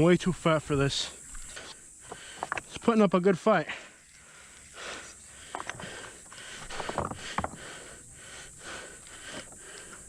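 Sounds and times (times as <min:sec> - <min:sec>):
person breathing hard: 0:01.8 - 0:02.6, 0:03.7 - 0:10.0
sharp clicks and rustles: 0:05.4 - 0:07.6.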